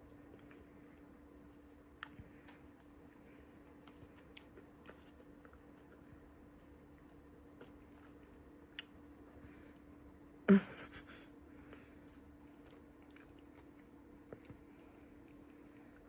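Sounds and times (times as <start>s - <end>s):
person chewing: 0.0s - 9.1s, 11.6s - 16.0s.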